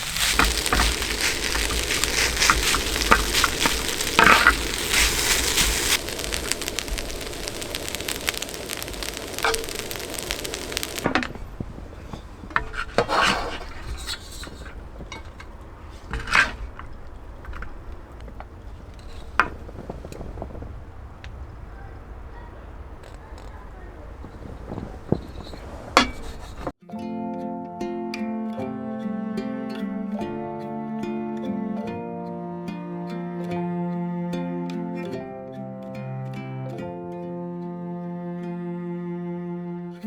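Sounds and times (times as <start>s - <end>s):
stirring scraping and clicking: 0.0s - 21.5s, 23.0s - 26.7s
food sizzling in a pan: 0.0s - 26.7s.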